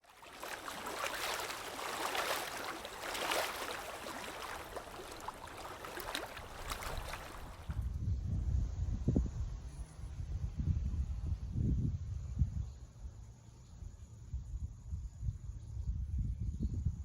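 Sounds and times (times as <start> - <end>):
water trickling and splashing: 0.0 - 7.9.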